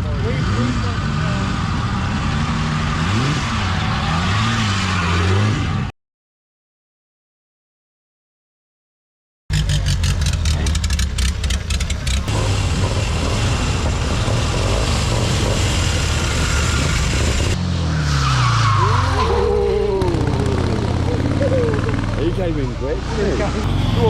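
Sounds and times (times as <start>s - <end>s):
racing car engine running hard: 0.0s - 5.9s, 9.5s - 18.2s, 18.9s - 24.0s
engine crackling: 9.5s - 18.2s, 18.8s - 24.0s.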